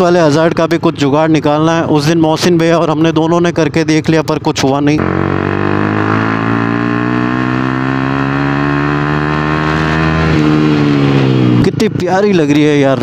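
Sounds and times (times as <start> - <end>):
motorcycle engine running: 5.0 - 13.0.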